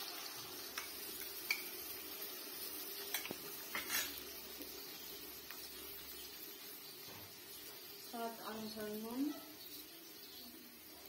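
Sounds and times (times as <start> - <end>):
food sizzling in oil: 0.0 - 11.0
spoon clicking against pan: 0.7 - 1.8, 3.1 - 4.1.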